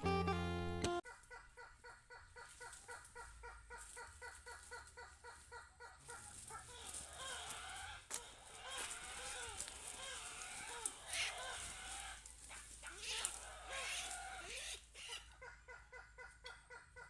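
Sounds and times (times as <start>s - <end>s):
guitar music: 0.0s - 1.0s.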